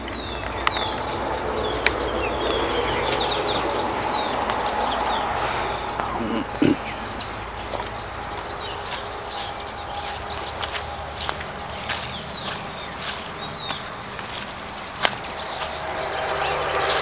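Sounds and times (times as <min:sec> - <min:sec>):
birds chirping: 0:00.0 - 0:17.0
high-pitched insect whine: 0:00.0 - 0:17.0
loud low sound: 0:15.2 - 0:17.0.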